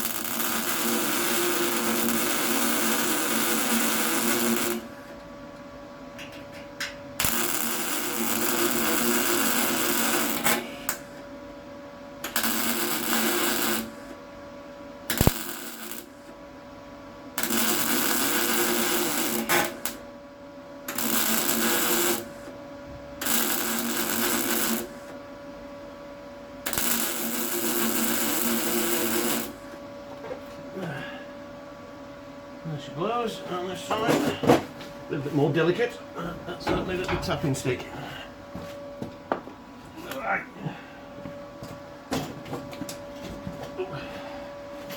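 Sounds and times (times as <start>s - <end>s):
welder crackling and buzzing: 0.0s - 11.4s, 12.2s - 14.3s, 15.0s - 16.5s, 17.3s - 20.2s, 20.8s - 25.7s, 26.5s - 30.3s.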